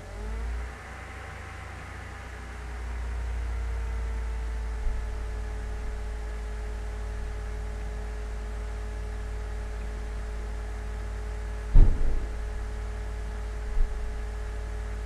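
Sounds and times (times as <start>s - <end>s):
low rumble and hum: 1.1s - 15.0s
small knock: 11.7s - 12.5s.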